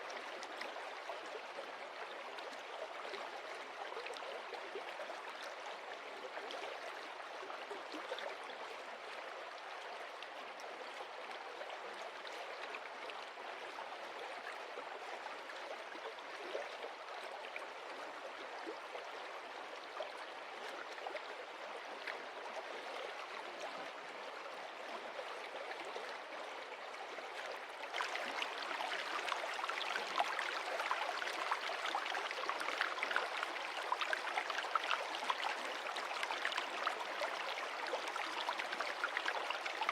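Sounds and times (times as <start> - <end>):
stream running over stones: 27.8 - 39.9.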